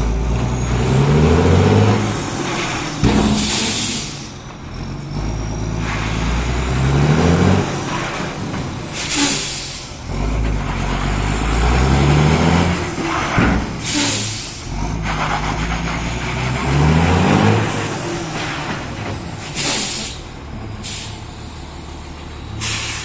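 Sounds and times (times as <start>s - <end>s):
truck diesel engine pulling away: 0.0s - 23.0s
air brake hiss: 2.8s - 4.4s, 8.9s - 10.0s, 13.8s - 14.7s, 19.4s - 21.6s, 22.6s - 23.0s.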